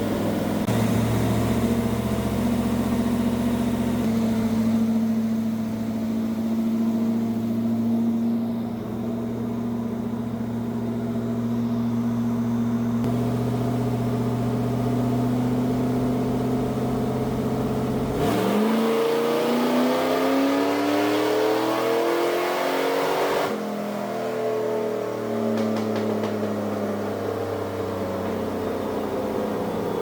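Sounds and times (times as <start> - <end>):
race car engine revving: 13.0 - 23.6.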